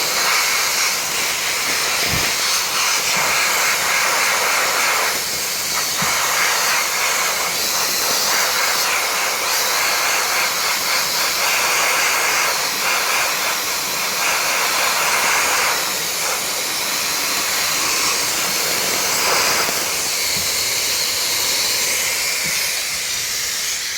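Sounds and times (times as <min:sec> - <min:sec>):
compressed-air tool hissing: 0:00.0 - 0:23.9.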